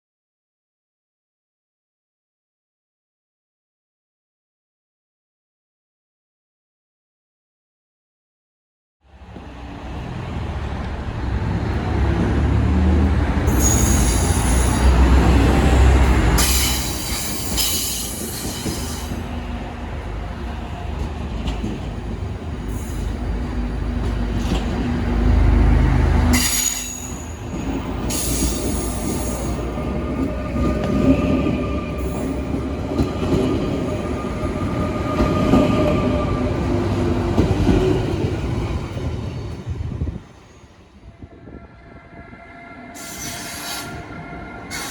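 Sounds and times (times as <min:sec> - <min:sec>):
train rumbling: 0:09.1 - 0:44.9
train wheels squealing: 0:13.5 - 0:19.4, 0:26.3 - 0:32.7, 0:42.1 - 0:44.9.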